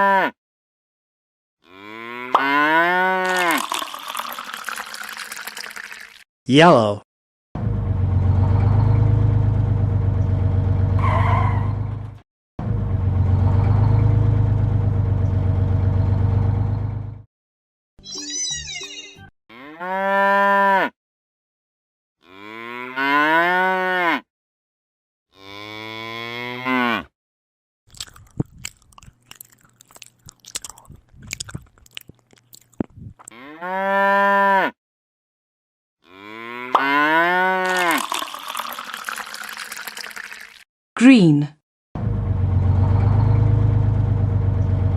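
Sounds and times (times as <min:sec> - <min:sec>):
cattle mooing: 0:01.6 - 0:03.3, 0:19.5 - 0:20.9, 0:22.2 - 0:24.2, 0:25.4 - 0:27.1, 0:33.3 - 0:34.7, 0:36.0 - 0:37.7.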